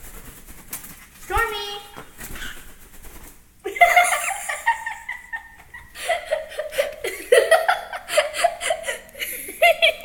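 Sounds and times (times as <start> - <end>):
people laughing: 3.7 - 10.0.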